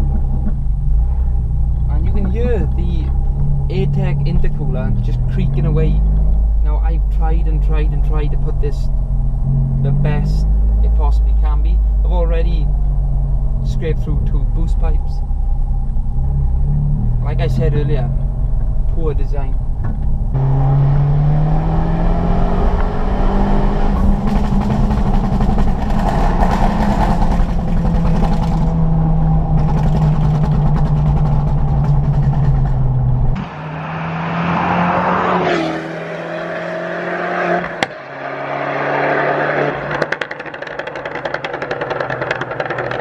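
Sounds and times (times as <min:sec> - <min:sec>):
car engine pulling under way: 0:00.0 - 0:43.0
car passing by: 0:33.4 - 0:39.8.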